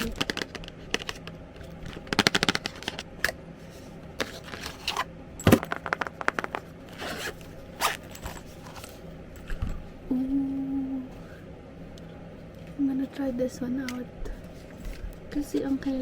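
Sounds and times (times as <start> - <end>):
packaging scraping and rustling: 3.8 - 5.1, 6.9 - 9.0.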